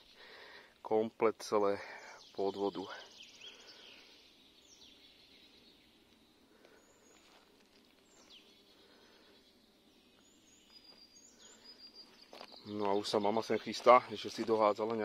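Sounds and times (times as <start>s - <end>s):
distant bird calls: 0.0s - 15.0s.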